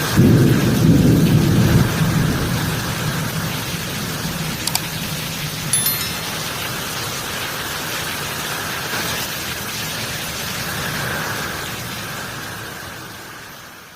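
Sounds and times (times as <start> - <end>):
low rumble of thunder: 0.2 - 3.4.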